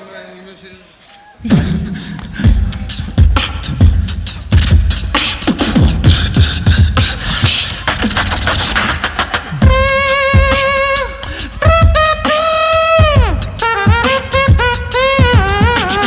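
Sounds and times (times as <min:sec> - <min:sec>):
beatboxing kick drum sounds: 0:01.4 - 0:16.0
beatboxed snare and hi-hat clicks: 0:01.5 - 0:16.0
held wavering vocal note: 0:09.6 - 0:16.0.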